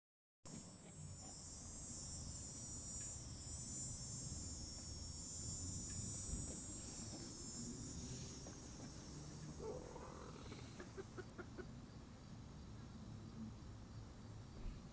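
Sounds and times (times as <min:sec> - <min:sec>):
faint low hum: 0:00.5 - 0:14.9
insect chorus: 0:00.5 - 0:14.9.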